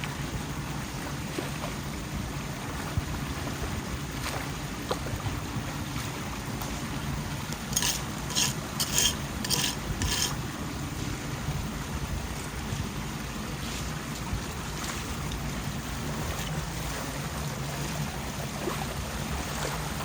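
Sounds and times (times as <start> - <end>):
short scraping sounds: 7.7 - 10.4.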